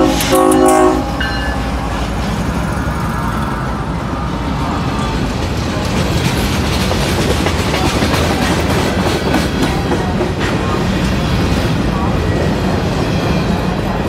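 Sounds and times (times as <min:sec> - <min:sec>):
diesel locomotive rumble: 0:00.0 - 0:14.0.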